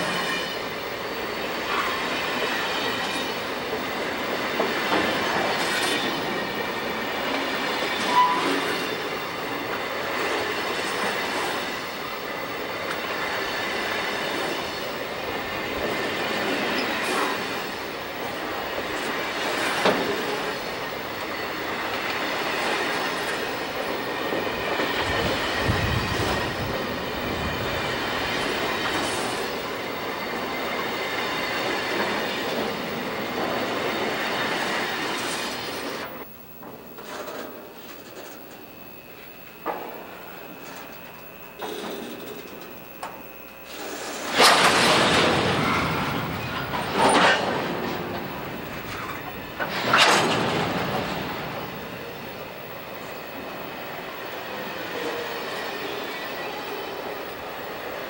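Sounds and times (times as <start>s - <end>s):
train wheels rolling on rails: 0.0s - 58.0s
thin wheel squeal: 7.8s - 9.2s.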